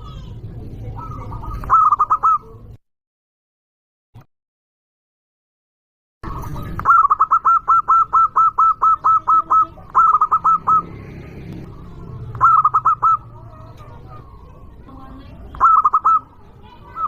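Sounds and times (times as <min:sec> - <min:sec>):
zebra dove cooing: 0:00.9 - 0:02.6, 0:06.3 - 0:14.8, 0:15.4 - 0:17.0.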